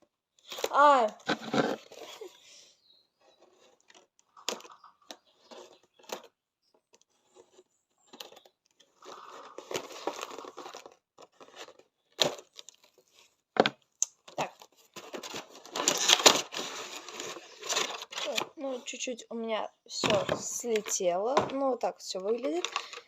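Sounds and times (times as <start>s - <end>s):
plastic packaging rustling: 7.1s - 13.4s, 14.3s - 18.5s.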